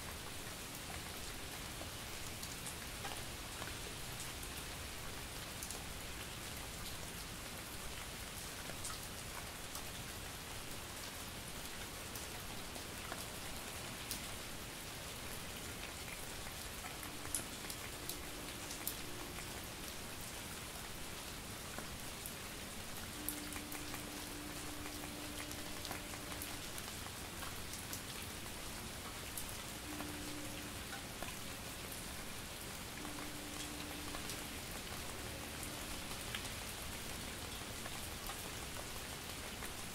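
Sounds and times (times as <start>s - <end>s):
light rain falling: 0.0s - 39.9s
raindrops ticking: 15.8s - 21.0s, 22.8s - 39.8s.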